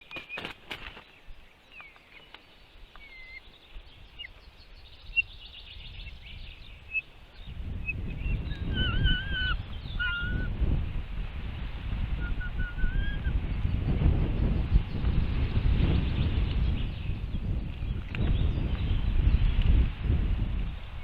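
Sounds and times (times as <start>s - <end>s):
small birds chirping: 0.0s - 10.5s, 12.1s - 19.9s
whistled bird calls: 3.0s - 3.5s, 4.1s - 10.5s, 12.2s - 13.4s
warbling bird call: 7.9s - 10.5s, 12.2s - 13.4s.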